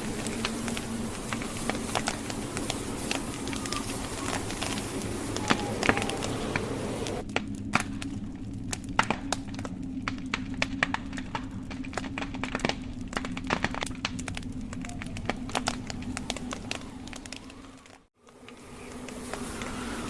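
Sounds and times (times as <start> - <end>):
low rush of burning: 0.0 - 17.9
wood fire crackling: 0.0 - 20.0.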